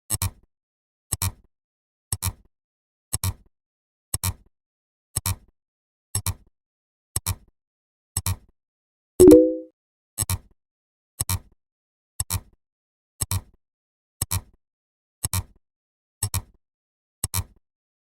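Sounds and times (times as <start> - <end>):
brief pitched tone: 9.2 - 9.6
sharp double click: 9.2 - 9.6.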